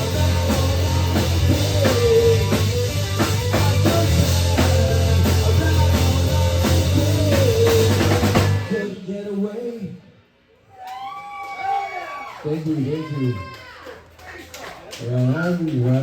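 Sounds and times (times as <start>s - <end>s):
rock song with drums and bass: 0.0s - 8.9s.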